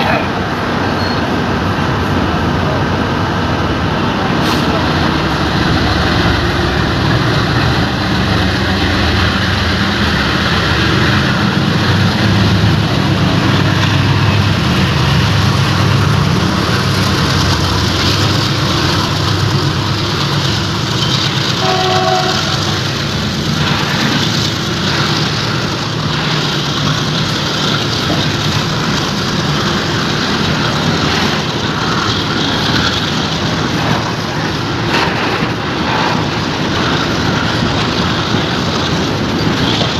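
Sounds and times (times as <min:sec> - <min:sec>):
locomotive engine running hard: 0:00.0 - 0:39.9
wheels clattering over rail joints: 0:04.4 - 0:39.9
train horn: 0:21.6 - 0:22.8.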